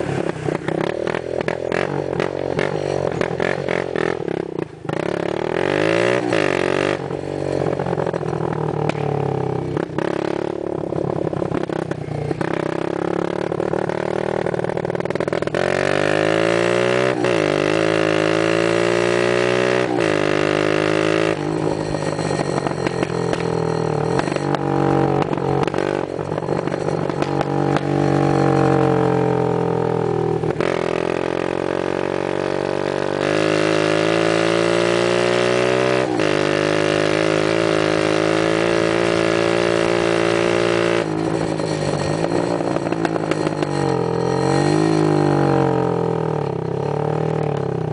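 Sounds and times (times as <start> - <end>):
minibike engine revving: 0.0 - 47.9.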